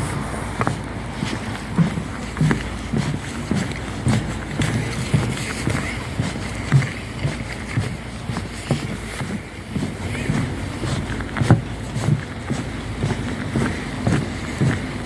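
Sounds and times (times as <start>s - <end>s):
footsteps walking: 0.0s - 15.0s.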